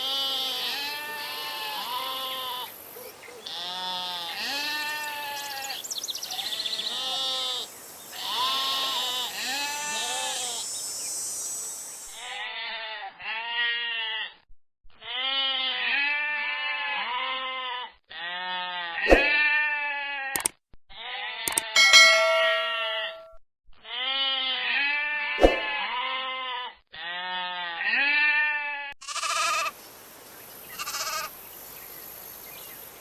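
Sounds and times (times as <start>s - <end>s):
sheep and goats bleating: 0.0s - 10.6s, 12.2s - 20.3s, 20.9s - 22.8s, 23.8s - 29.8s, 30.7s - 31.4s
sharp click: 20.4s - 20.6s, 21.5s - 23.4s.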